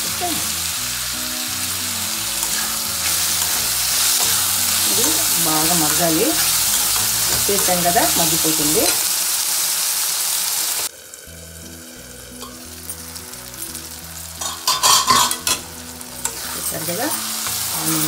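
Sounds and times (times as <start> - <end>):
onions sizzling in pan: 0.0 - 18.0
steel spatula stirring: 2.2 - 9.1, 14.4 - 15.6, 16.2 - 17.9
metal lid clattering: 14.4 - 15.6.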